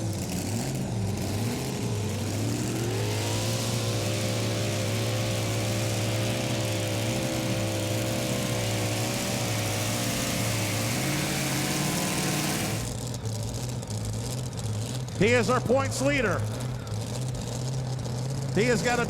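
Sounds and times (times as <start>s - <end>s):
truck engine at high revs: 0.0s - 19.0s.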